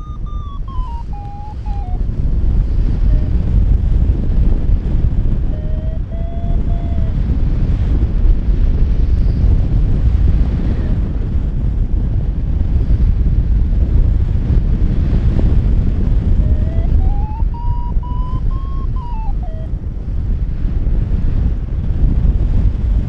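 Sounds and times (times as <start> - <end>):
faint thin rising tone: 0.0 - 2.0, 16.4 - 19.7
wind buffeting microphone: 0.0 - 23.0.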